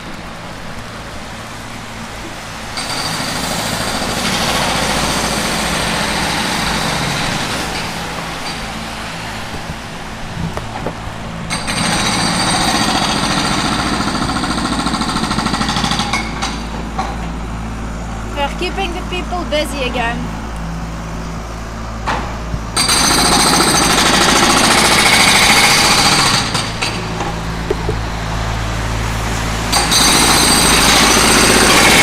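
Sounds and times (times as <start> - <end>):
engine drone: 0.0 - 32.0
pneumatic drill hammering: 2.7 - 8.8, 10.5 - 17.4, 22.0 - 28.2, 29.7 - 32.0.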